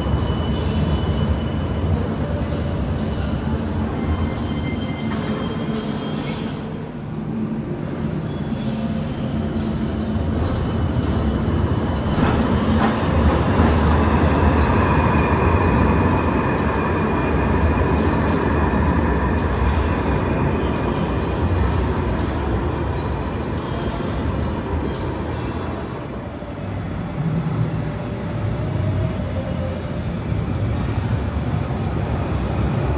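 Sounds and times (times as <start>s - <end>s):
tram rumbling past: 0.0s - 32.9s.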